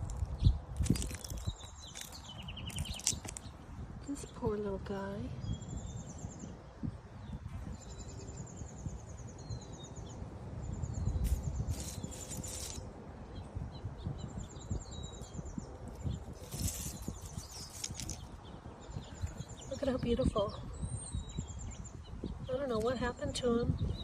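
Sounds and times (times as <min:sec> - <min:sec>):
brief rustles: 0:11.2 - 0:12.8.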